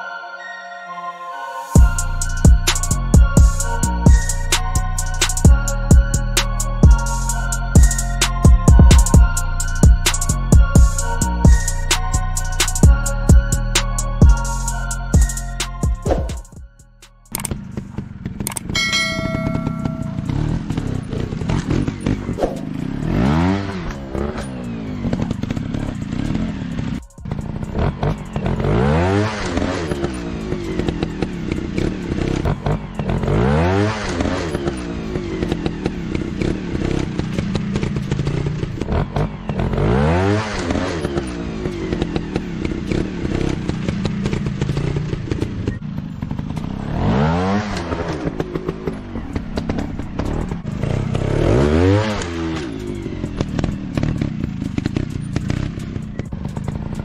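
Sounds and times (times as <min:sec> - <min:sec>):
dirt bike engine revving: 0:17.4 - 0:57.0.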